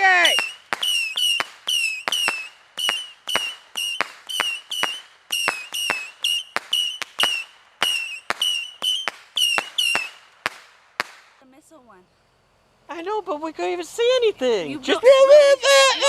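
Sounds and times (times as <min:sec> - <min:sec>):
whistling firework shots: 0:00.0 - 0:11.4.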